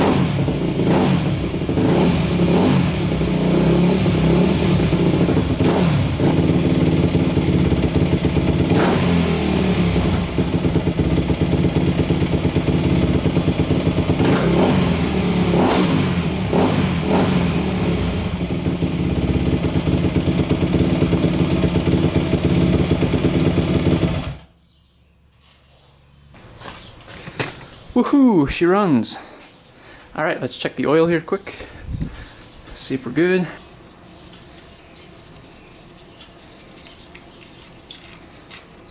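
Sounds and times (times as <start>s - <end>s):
motorcycle engine revving: 0.0s - 24.5s.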